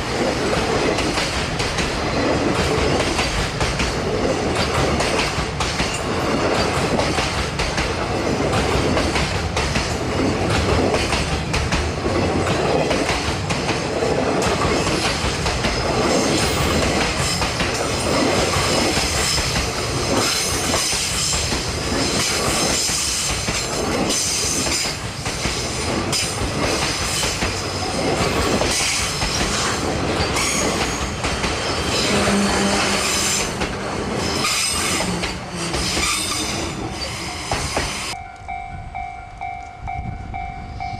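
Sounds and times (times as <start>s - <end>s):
train wheels clacking over rail joints: 0.0s - 36.8s
high wheel squeal: 34.2s - 38.2s.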